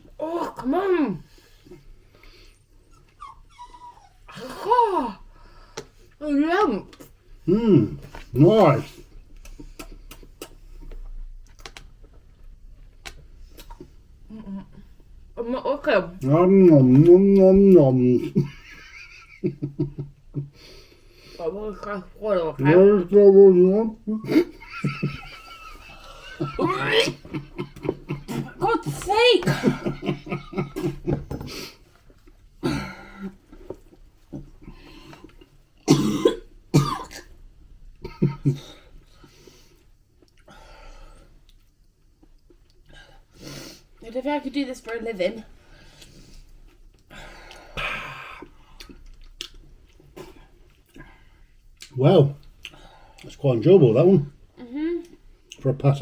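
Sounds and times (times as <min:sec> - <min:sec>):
person gagging and retching: 0:26.2 - 0:28.8, 0:35.9 - 0:37.3, 0:47.8 - 0:49.0.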